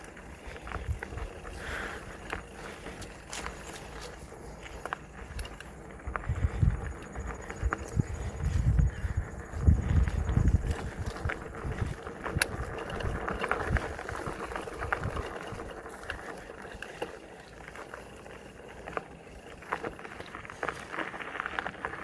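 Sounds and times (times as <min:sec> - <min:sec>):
bike clicks and rattles: 0:00.0 - 0:22.0
bike tyres crunching on dirt: 0:00.0 - 0:22.0
heavy low rumble: 0:06.0 - 0:12.0.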